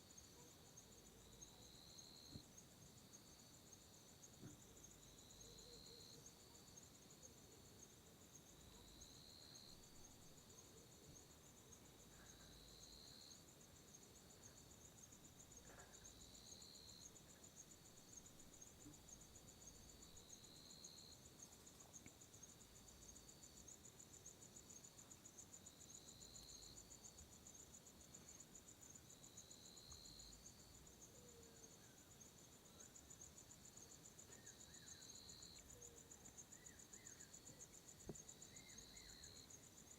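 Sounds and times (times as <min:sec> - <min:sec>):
lower cricket chirp: 0:00.0 - 0:39.9
crickets trilling: 0:29.2 - 0:39.9.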